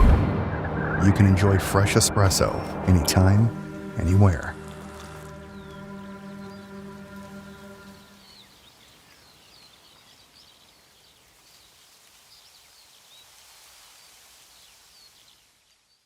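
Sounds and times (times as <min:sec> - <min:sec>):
music chord: 0:00.0 - 0:08.4
small birds chirping: 0:03.6 - 0:16.0.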